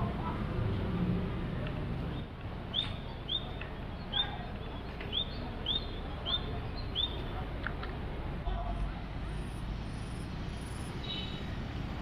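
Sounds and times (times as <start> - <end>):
bird chirping: 2.1 - 7.3.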